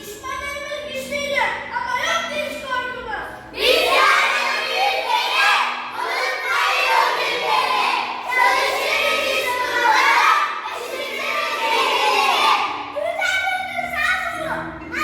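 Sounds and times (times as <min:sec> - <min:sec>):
children shouting: 0:03.6 - 0:14.2.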